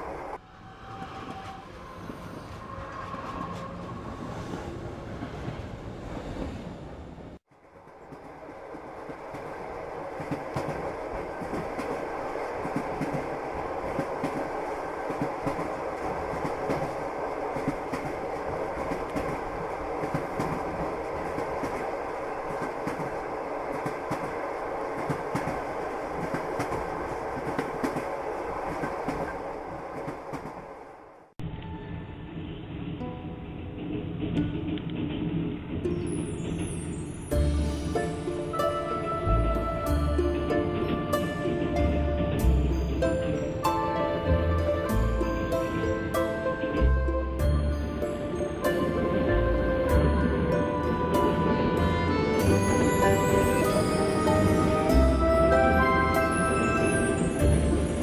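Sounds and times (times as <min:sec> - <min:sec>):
train wheels clattering on rails: 0:07.5 - 0:30.9, 0:32.8 - 0:39.1.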